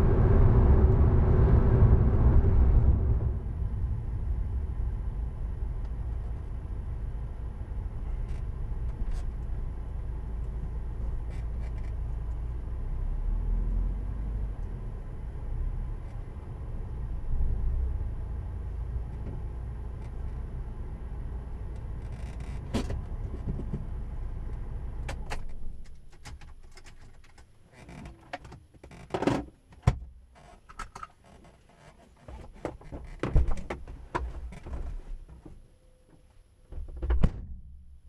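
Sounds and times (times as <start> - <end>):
clicks and knocks in car: 25.0 - 37.6.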